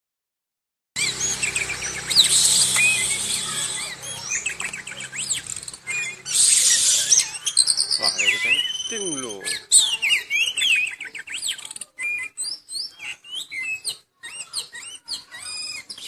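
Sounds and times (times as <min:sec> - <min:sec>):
bird harsh hissing calls: 0:01.0 - 0:10.8
bird singing whistles and chirps: 0:01.0 - 0:16.0.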